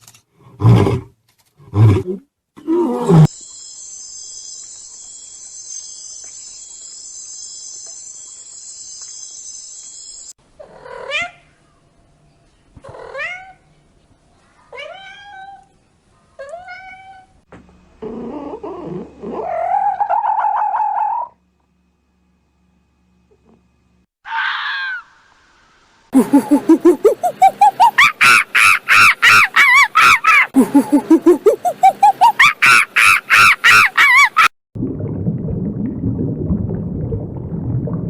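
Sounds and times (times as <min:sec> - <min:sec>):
steady high hiss: 0:03.3 - 0:10.4, 0:25.0 - 0:27.5.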